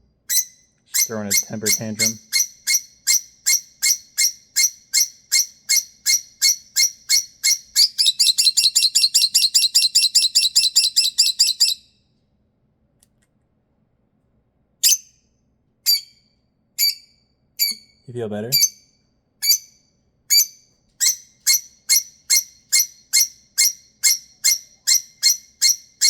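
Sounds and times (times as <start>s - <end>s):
lovebird shrill calls: 0.3s - 11.8s, 19.4s - 19.7s, 20.3s - 26.0s.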